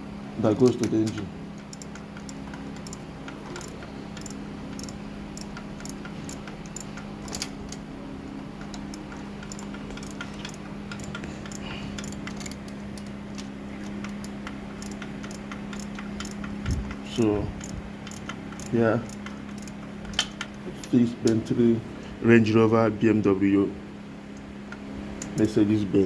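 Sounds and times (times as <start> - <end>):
steady low hum: 0.0 - 26.0
irregular ticks and clicks: 0.6 - 7.8, 8.6 - 21.4.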